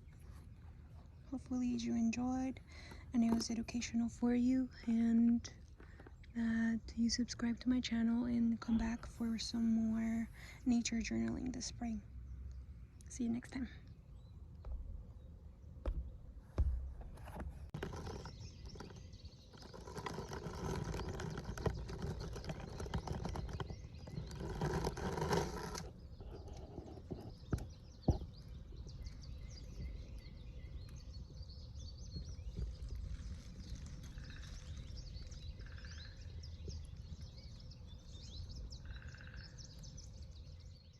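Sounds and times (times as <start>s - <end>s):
small bird chirps: 17.8s - 40.9s.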